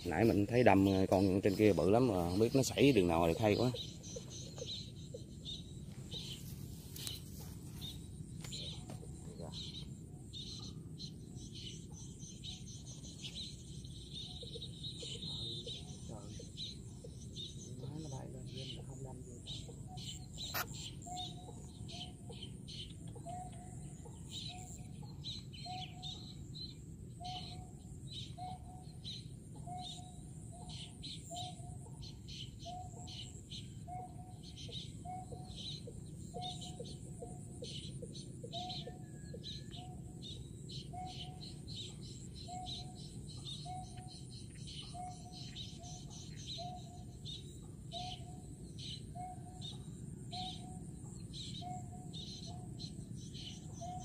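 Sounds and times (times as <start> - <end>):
higher bird chirping: 0.0 - 54.0
low clucking bird call: 20.4 - 21.7.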